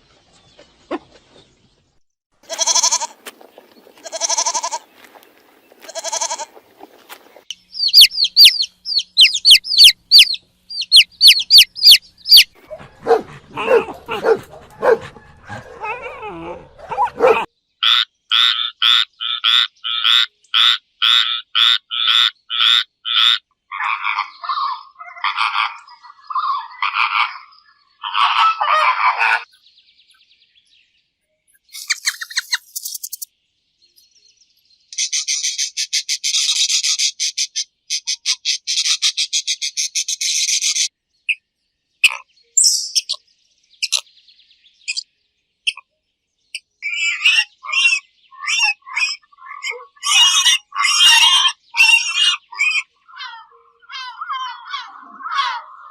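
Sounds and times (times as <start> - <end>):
animal calls and chirps: 2.5 - 30.2, 31.5 - 33.3, 34.9 - 44.2, 44.8 - 45.9, 46.5 - 55.9.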